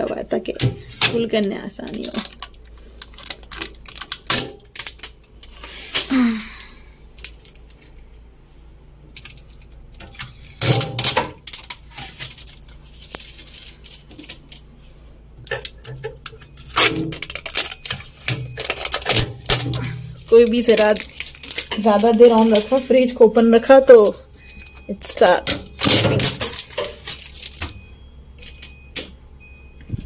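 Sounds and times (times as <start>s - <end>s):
plastic parts clattering: 0.0s - 8.2s, 9.1s - 14.7s, 15.4s - 27.8s
packing tape tearing: 0.8s - 6.6s, 9.2s - 14.7s, 15.5s - 22.8s, 25.4s - 27.7s.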